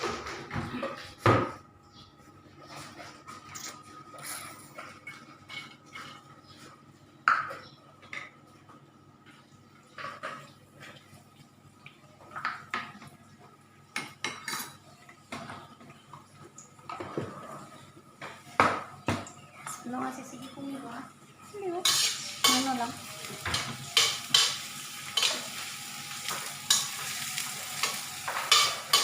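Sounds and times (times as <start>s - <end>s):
metal utensils clinking on pot: 21.8s - 25.6s, 27.8s - 29.0s.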